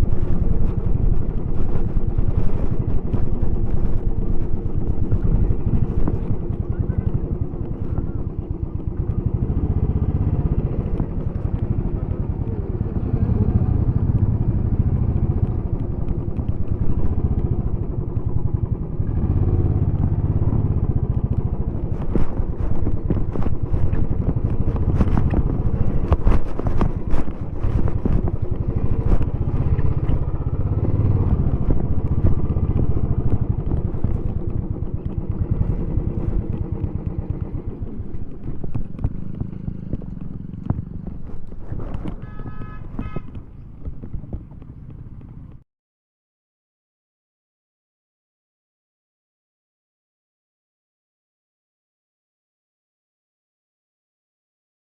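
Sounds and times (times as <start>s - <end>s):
motorcycle engine accelerating: 0.0s - 45.6s
sharp clicks and rattles: 19.8s - 45.6s.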